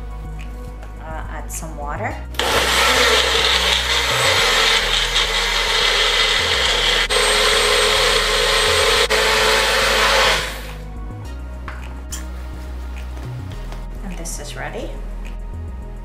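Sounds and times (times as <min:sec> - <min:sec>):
blender motor grinding: 0:02.4 - 0:10.8.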